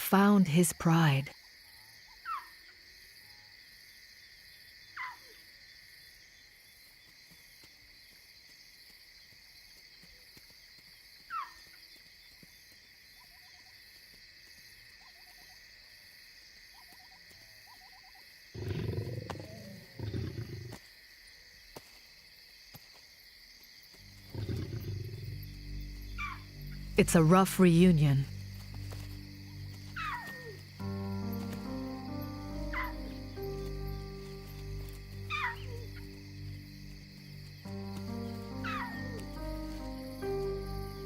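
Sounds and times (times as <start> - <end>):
crickets chirping: 0.0 - 41.0
lions growling: 18.6 - 20.8, 24.2 - 25.4.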